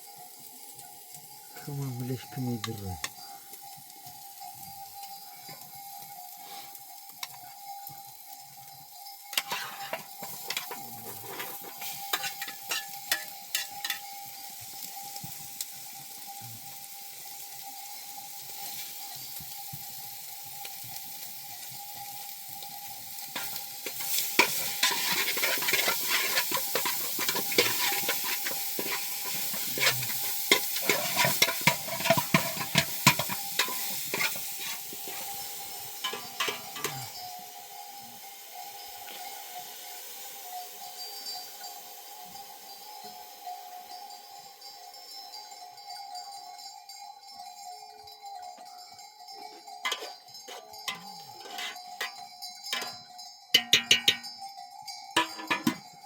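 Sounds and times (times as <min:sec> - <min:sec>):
food sizzling in a pan: 0:00.0 - 0:56.0
utensil scraping a pan: 0:09.4 - 0:14.1, 0:23.3 - 0:37.2, 0:49.8 - 0:53.0, 0:55.2 - 0:55.8.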